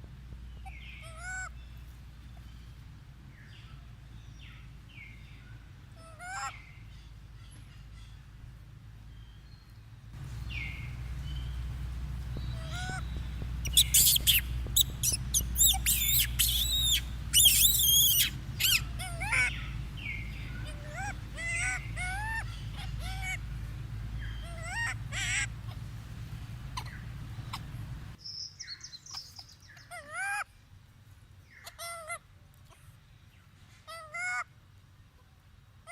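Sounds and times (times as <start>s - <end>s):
steady low hum: 0.0s - 28.2s
monkey squealing and chirping: 12.4s - 23.4s, 24.2s - 25.8s, 26.8s - 27.8s.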